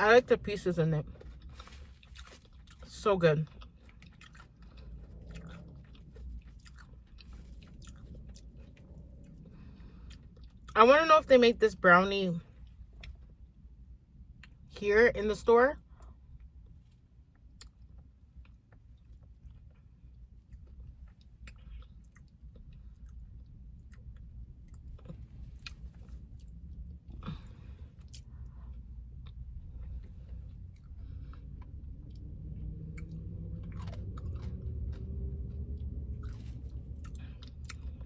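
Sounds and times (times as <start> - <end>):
low rumble: 0.0 - 11.8, 19.4 - 38.0
chewing crunchy ice cream: 0.6 - 10.8, 16.3 - 38.0.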